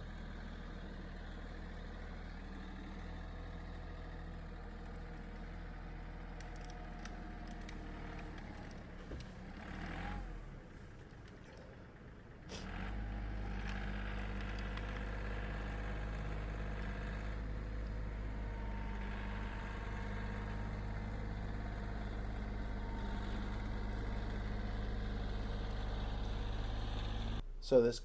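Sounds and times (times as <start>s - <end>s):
engine idling: 10.4s - 28.0s.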